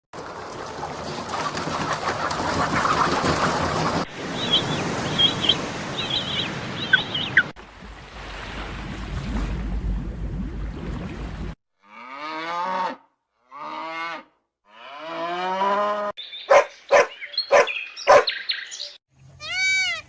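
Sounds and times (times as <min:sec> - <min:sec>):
bird chirping: 0:04.4 - 0:07.5, 0:16.2 - 0:19.0
low rumbling noise: 0:08.9 - 0:11.6.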